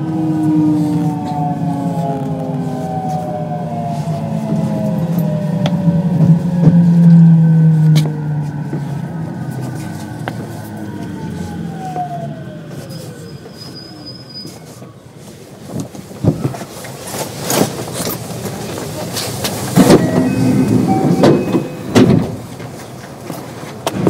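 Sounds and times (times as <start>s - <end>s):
electric train inverter whine: 0.0s - 14.3s, 18.7s - 24.0s
wheels knocking and clattering: 15.7s - 24.0s.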